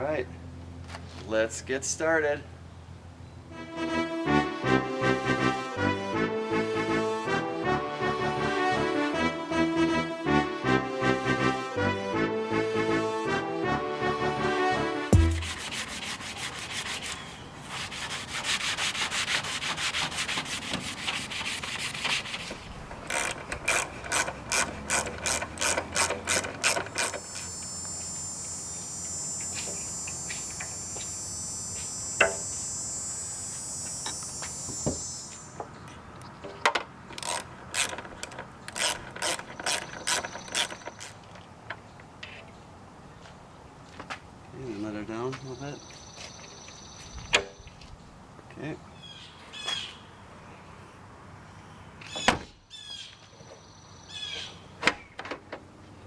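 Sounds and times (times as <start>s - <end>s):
steady high-pitched hum: 27.0s - 35.6s.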